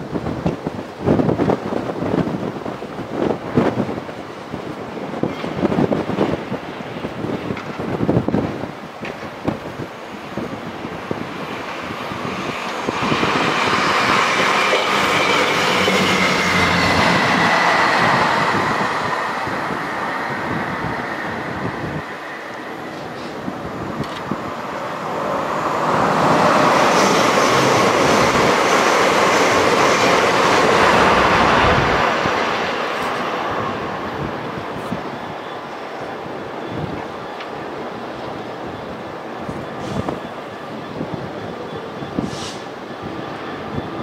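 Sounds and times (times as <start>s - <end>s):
train wheels clattering on rails: 5.2s - 8.0s.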